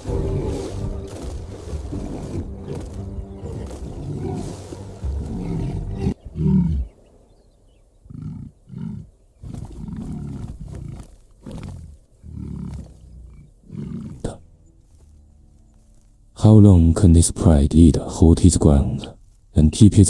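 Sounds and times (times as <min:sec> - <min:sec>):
lion roaring: 0:00.0 - 0:07.0, 0:08.0 - 0:14.4.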